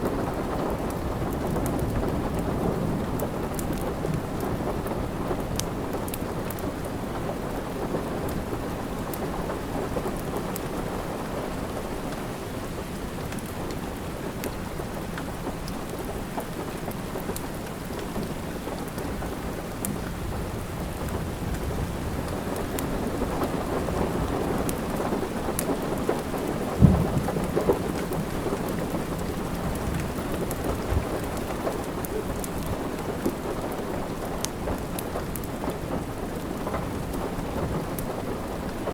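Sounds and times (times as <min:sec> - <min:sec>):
steady rain: 0:00.0 - 0:38.9
wood fire crackling: 0:03.1 - 0:38.9
low thump: 0:26.8 - 0:27.4.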